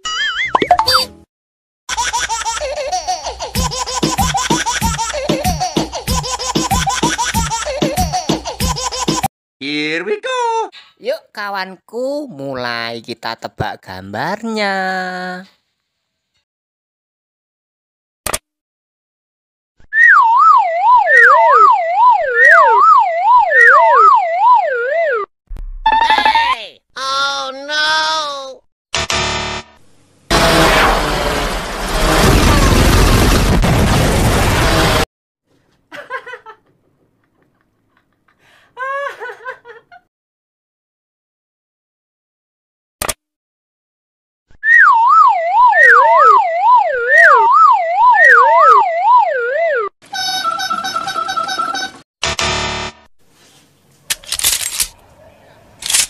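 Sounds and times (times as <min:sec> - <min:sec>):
cartoon siren sound effect: 0:19.9 - 0:26.5, 0:44.6 - 0:50.8
warbling electronic tone: 0:20.0 - 0:26.2, 0:44.7 - 0:49.8.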